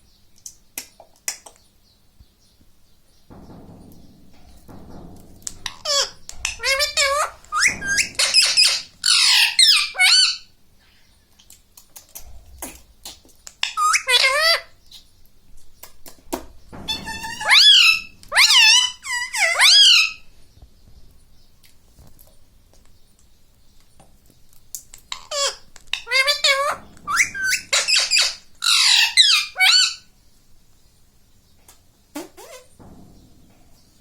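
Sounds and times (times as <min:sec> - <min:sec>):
parrot squawking: 0:05.8 - 0:10.5, 0:13.6 - 0:14.7, 0:16.9 - 0:20.2, 0:25.1 - 0:30.0.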